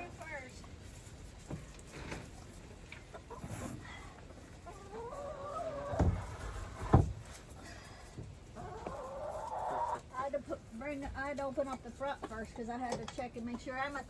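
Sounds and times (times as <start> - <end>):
chickens clucking: 1.6 - 14.0
drawn-out wavering chicken calls: 4.2 - 6.9, 8.5 - 10.2.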